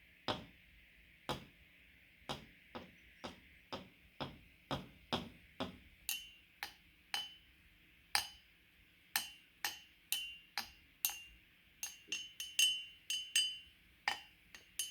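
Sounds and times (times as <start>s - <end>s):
sharp taps with high ringing: 2.3s - 7.4s, 8.2s - 8.4s, 9.2s - 14.9s.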